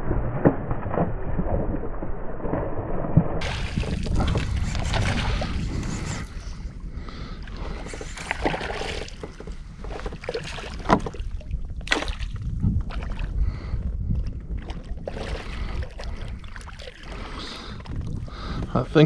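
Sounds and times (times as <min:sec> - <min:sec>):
steady low rumble: 0:00.0 - 0:19.0
knocks and clicks in plastic kayak: 0:07.9 - 0:13.2.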